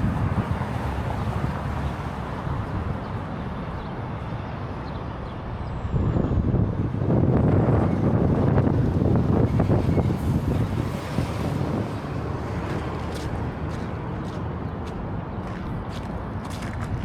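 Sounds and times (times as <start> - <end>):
passing vehicle rumble: 0.0 - 17.0.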